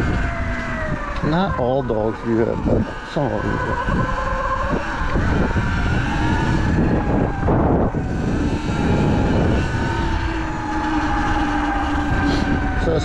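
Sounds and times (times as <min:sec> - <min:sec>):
electric motorbike motor whining: 0:00.0 - 0:13.0
heavy low rumble: 0:10.5 - 0:13.0.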